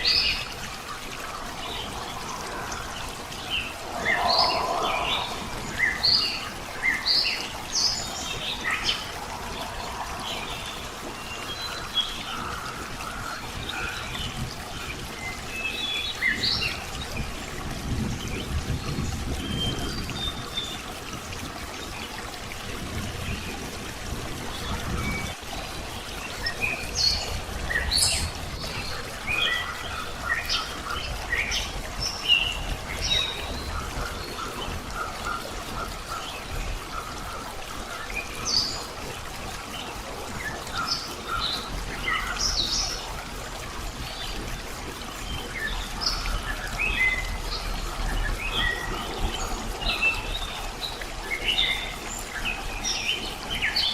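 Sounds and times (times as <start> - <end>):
songbirds chirping: 0.0 - 16.8, 24.4 - 43.2
trickle of running water: 0.0 - 53.9.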